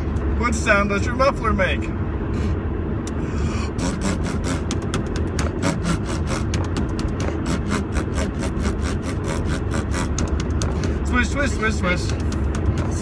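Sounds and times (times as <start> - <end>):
low rumble of car on road: 0.0 - 13.0
people making sputtering mouth noises: 3.6 - 10.9.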